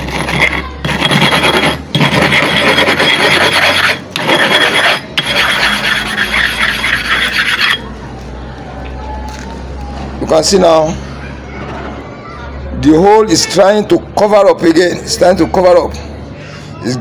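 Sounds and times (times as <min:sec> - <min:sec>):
sharpening stone rasping scrape: 0:00.0 - 0:07.9.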